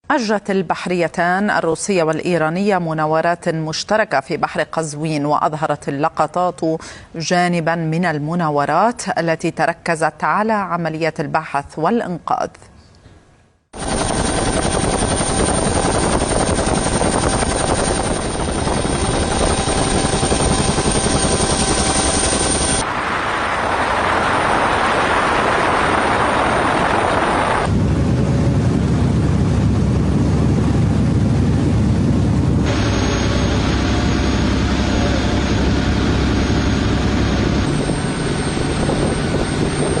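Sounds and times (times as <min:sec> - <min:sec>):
loud engine noise: 0:17.8 - 0:40.0.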